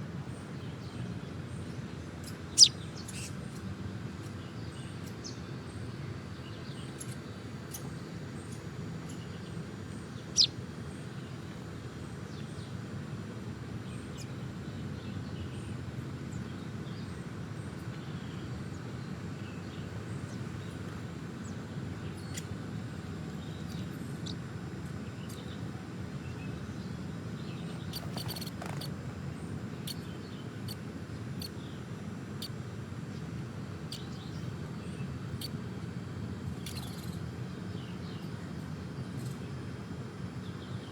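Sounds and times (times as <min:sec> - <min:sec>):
small birds chirping: 0:02.2 - 0:03.4, 0:06.4 - 0:11.5, 0:17.8 - 0:38.4.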